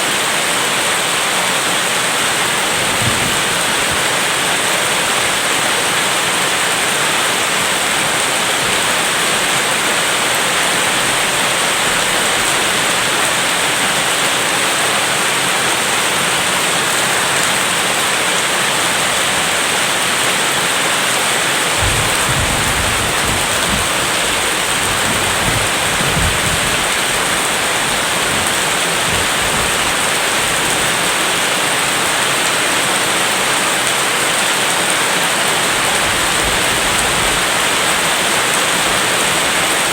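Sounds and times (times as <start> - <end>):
heavy rain: 0.0 - 39.9
distant thunder rumble: 2.3 - 5.0, 21.7 - 31.0.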